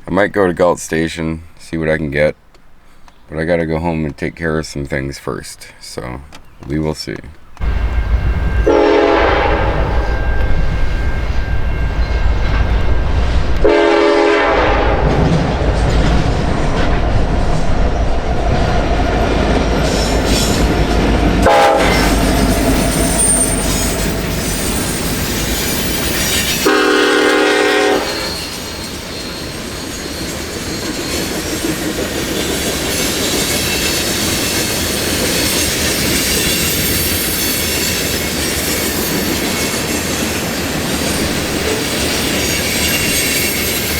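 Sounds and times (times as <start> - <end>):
diesel locomotive rumble: 6.0 - 43.3
rolling clatter of train cars: 6.3 - 43.9
train horn blasts: 7.6 - 15.3, 21.4 - 25.2, 26.5 - 28.8.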